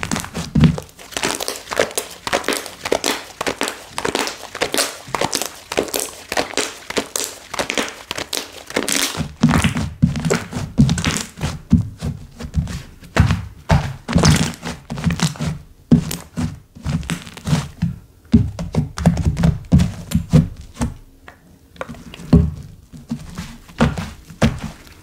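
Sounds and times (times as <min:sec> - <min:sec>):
slime crackling and popping: 0:00.0 - 0:11.6, 0:13.2 - 0:17.7.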